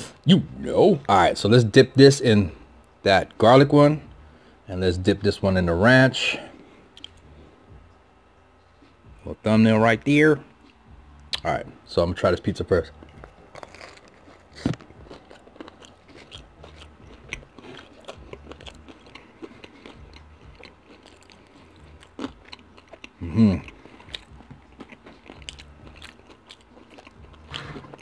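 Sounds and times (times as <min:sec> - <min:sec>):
close-miked chewing: 0:06.9 - 0:07.3, 0:12.9 - 0:28.0
wet mouth clicks: 0:07.0 - 0:07.2
crust crunching: 0:12.8 - 0:28.0
person humming: 0:23.2 - 0:23.8.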